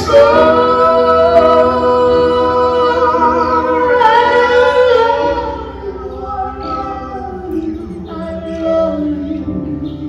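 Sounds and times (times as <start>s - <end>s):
backing music: 0.0s - 10.0s
woman singing with vibrato: 0.0s - 10.0s.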